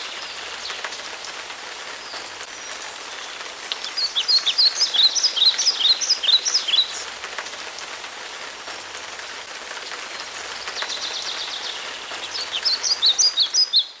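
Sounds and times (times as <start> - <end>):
steady rain falling: 0.0 - 14.0
songbird chirping: 2.0 - 7.1, 10.4 - 14.0.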